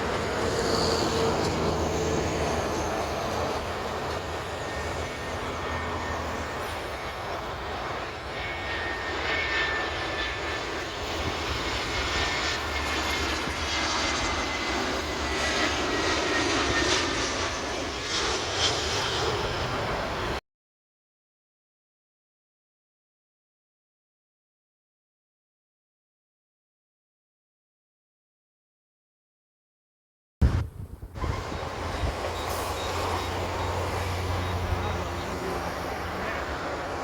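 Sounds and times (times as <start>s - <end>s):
airliner jet engines passing: 0.0s - 20.4s, 30.4s - 37.0s.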